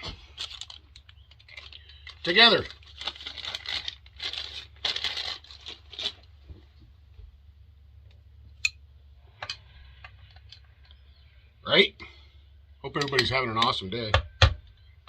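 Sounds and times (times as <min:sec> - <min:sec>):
rustling and crinkling handling: 0:00.0 - 0:07.4.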